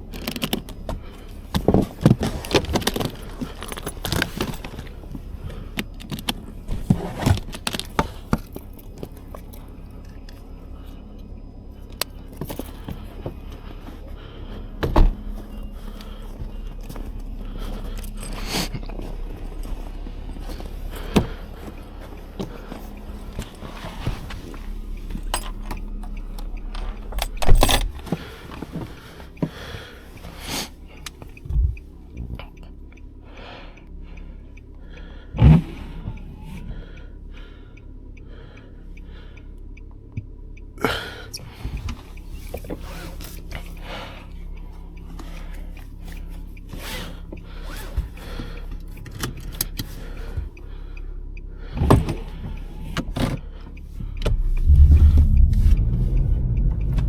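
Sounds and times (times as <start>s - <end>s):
handling clicks and knocks: 0.0s - 10.5s, 14.8s - 29.6s
car engine hum: 0.0s - 57.0s
evenly spaced ticks: 15.6s - 57.0s.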